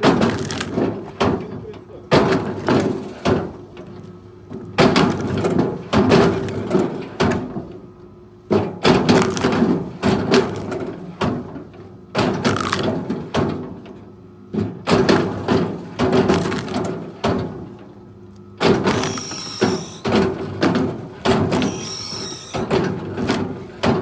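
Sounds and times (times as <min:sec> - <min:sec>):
wood cracks and thuds: 0:00.0 - 0:03.5, 0:04.8 - 0:07.5, 0:08.9 - 0:11.4, 0:12.3 - 0:13.6, 0:15.0 - 0:17.7, 0:18.6 - 0:24.0
heavy machine engine running: 0:14.9 - 0:24.0.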